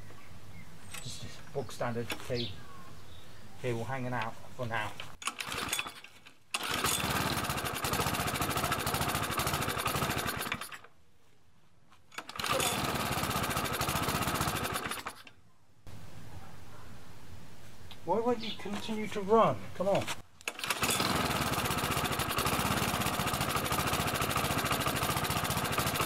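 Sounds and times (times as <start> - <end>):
lawn mower engine running: 5.2 - 10.9, 12.2 - 15.2, 20.4 - 26.0.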